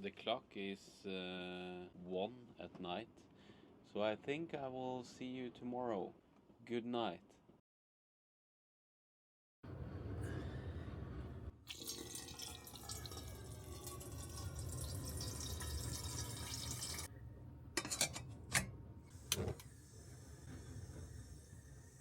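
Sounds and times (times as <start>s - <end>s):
water running: 11.7s - 17.1s.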